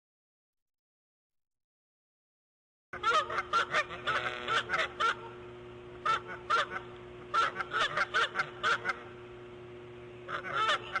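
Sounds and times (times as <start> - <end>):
harsh bird calls: 3.0 - 5.4, 6.0 - 9.3, 9.9 - 11.0
low electrical hum: 3.0 - 11.0.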